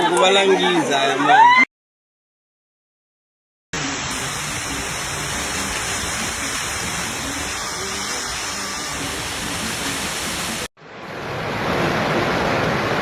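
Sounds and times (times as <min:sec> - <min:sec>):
rushing water: 0:03.8 - 0:13.0.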